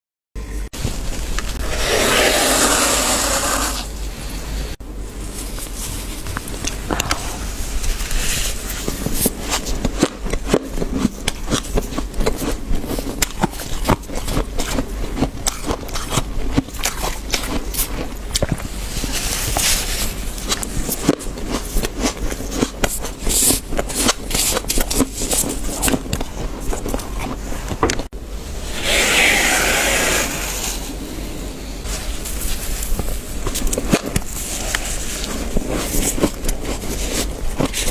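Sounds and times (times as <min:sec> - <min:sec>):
frost being crunched and scraped: 0:01.4 - 0:04.0, 0:28.7 - 0:31.1, 0:31.8 - 0:37.9.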